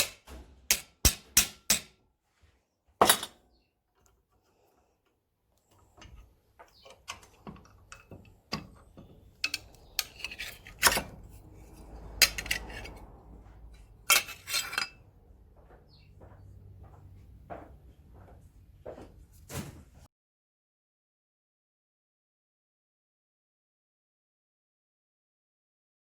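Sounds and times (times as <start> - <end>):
metal strikes: 0.0 - 2.0.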